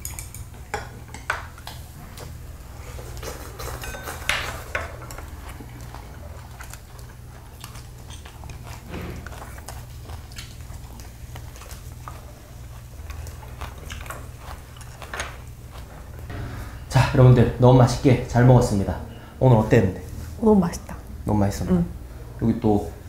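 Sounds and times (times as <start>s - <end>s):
chopsticks clicking against dishes: 0.0s - 1.8s, 3.2s - 7.0s
people chewing food: 0.0s - 16.4s
steady low hum: 0.0s - 23.0s.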